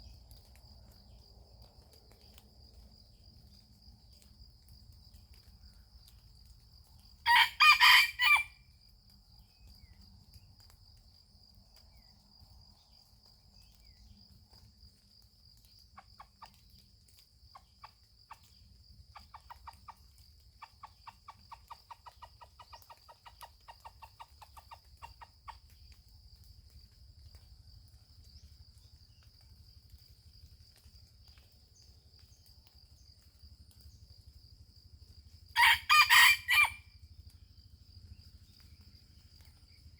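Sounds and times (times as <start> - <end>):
rooster crowing: 7.3 - 8.6, 35.6 - 36.9
soft rapid clucking: 19.2 - 25.8.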